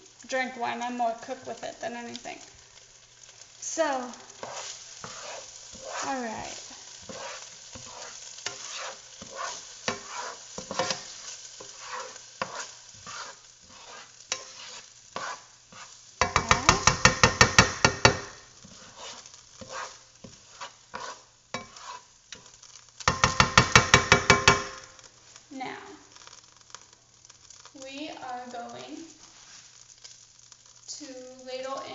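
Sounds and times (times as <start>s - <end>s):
rice sizzling in a pan: 0.0s - 31.9s
fast scraping strokes: 4.4s - 6.2s, 7.0s - 11.0s, 11.7s - 16.0s, 18.7s - 22.1s
spoon stirring: 4.4s - 25.0s.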